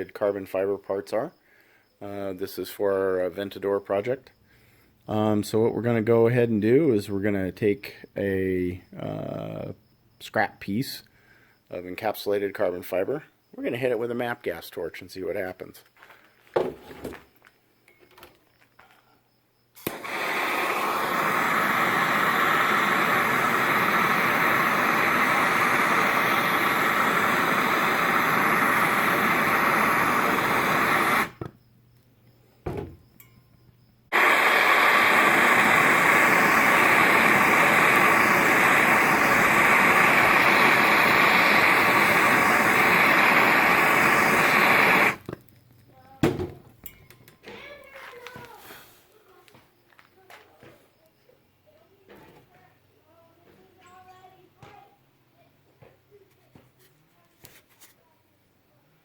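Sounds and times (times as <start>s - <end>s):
gas torch hissing: 19.8s - 31.6s, 34.1s - 45.5s
short knock: 32.6s - 33.0s.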